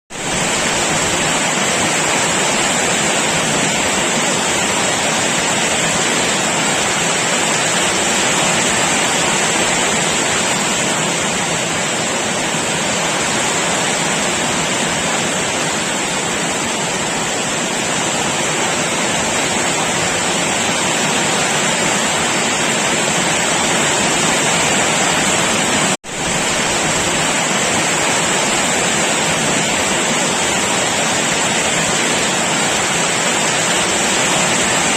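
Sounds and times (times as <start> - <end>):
heavy rain falling: 0.1 - 34.9.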